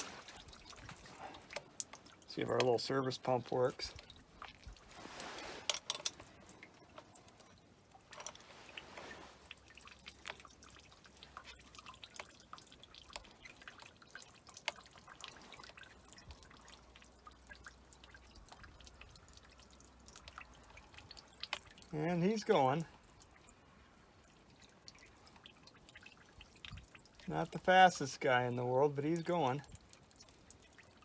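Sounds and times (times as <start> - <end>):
fuel dripping: 0.0 - 31.0
hand pump clicking: 5.7 - 6.3.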